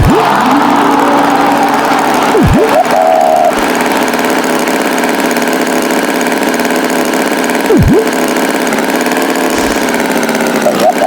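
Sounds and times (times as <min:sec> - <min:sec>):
swooping tone: 0:00.0 - 0:04.4, 0:07.7 - 0:08.2
tractor engine running: 0:00.0 - 0:11.0.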